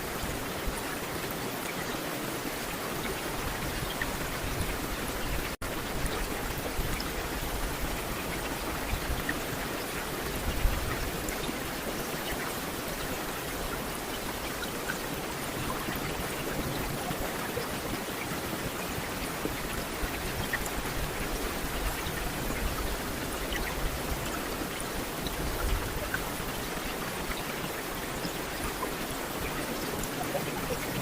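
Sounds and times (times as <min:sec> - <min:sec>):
steady rain hiss: 0:00.0 - 0:31.0
raindrop ticks and spatters: 0:00.1 - 0:31.0.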